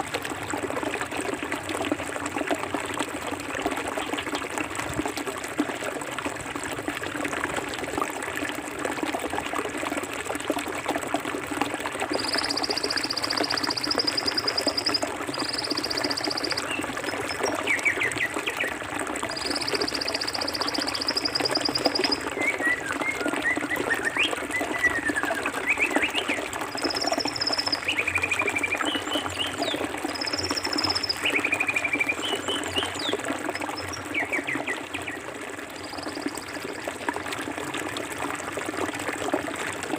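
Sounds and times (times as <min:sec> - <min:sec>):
high rapid bird trills: 0:12.1 - 0:17.4
bird chirps and whistles: 0:12.1 - 0:18.0, 0:19.4 - 0:33.1.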